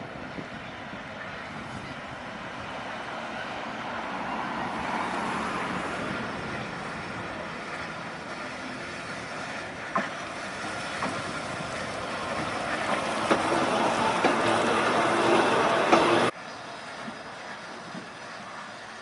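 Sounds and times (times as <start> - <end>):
electric railway car running: 0.0 - 19.0
wheels clicking over rails: 6.5 - 19.0.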